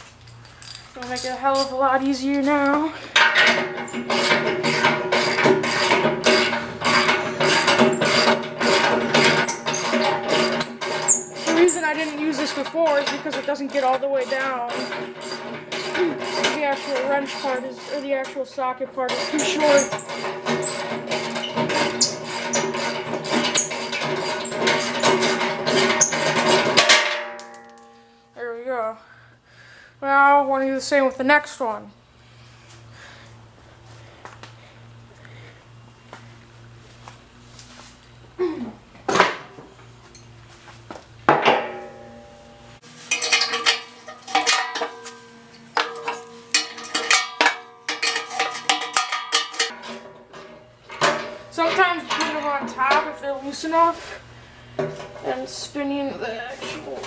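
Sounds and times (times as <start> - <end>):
metal horn ringing: 42.9 - 49.7.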